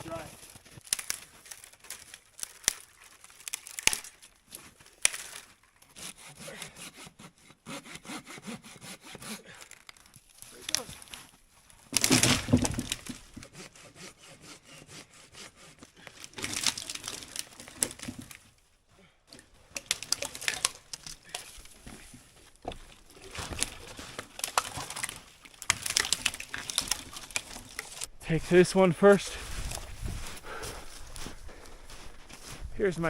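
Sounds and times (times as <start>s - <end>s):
dry pine needles rustling: 0.0s - 5.9s, 9.6s - 13.4s, 16.2s - 18.7s, 19.4s - 33.0s
dry branches cracking and splintering: 0.0s - 6.7s, 9.3s - 14.6s, 15.4s - 18.6s, 19.3s - 28.2s, 29.1s - 32.5s.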